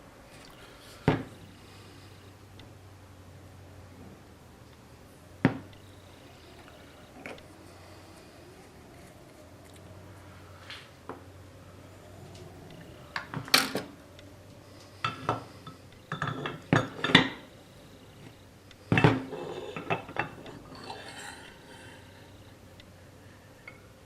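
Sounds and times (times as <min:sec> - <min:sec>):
metal tools clinking together: 0:15.0 - 0:17.4.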